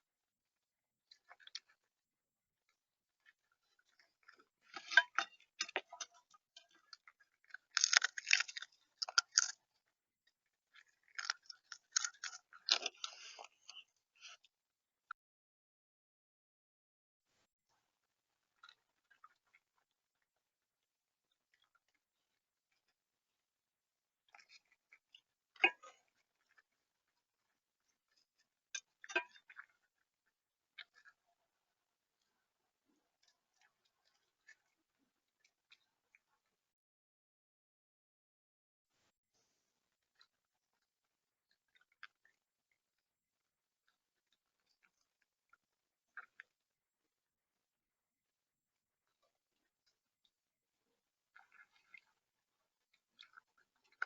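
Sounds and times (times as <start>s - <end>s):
bird pecking and cracking seed: 4.7s - 9.6s, 10.8s - 13.5s.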